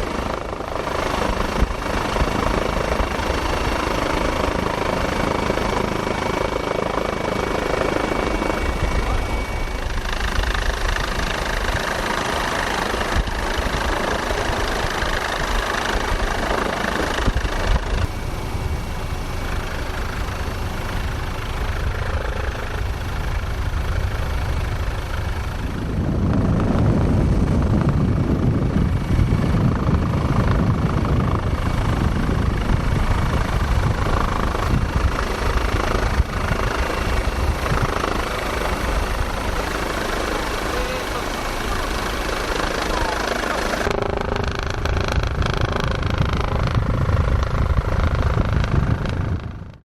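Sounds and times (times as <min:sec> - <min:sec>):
helicopter rotor and engine: 0:00.0 - 0:49.8.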